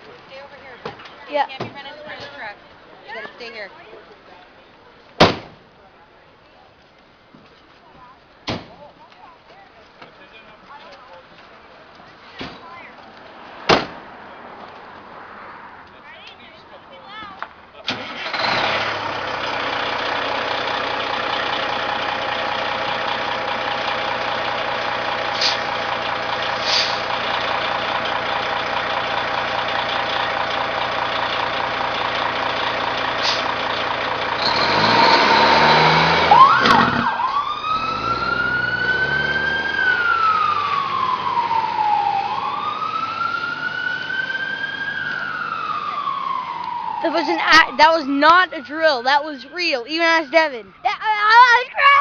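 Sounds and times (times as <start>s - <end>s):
truck engine running and revving: 18.0s - 49.4s
siren wailing: 36.1s - 52.0s.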